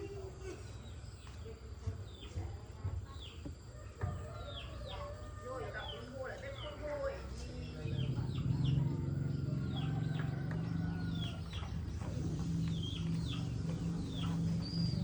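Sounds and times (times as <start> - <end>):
birds chirping falling calls: 4.2 - 15.0
low mechanical hum: 7.0 - 15.0.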